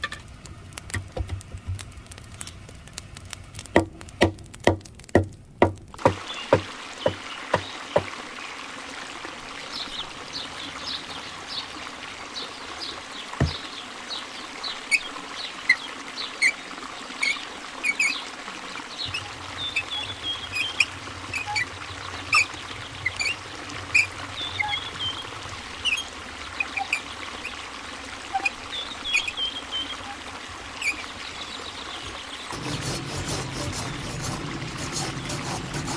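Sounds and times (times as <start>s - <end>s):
water trickling: 5.9s - 35.9s
sharp knocks: 13.4s - 13.6s.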